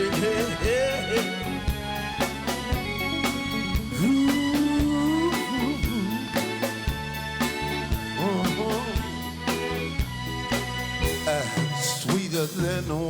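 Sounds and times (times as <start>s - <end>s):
person singing: 0.0s - 1.6s, 3.4s - 6.8s, 8.1s - 9.3s
drums on steady beat: 0.0s - 13.0s
live soul band playing: 0.0s - 13.0s.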